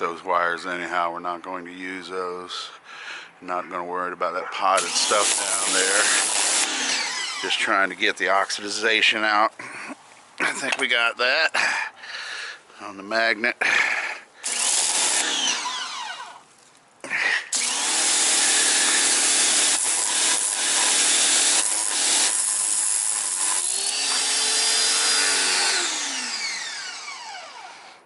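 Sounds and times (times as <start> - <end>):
power tool grinding metal: 4.8 - 7.9, 14.4 - 16.4, 17.5 - 28.0.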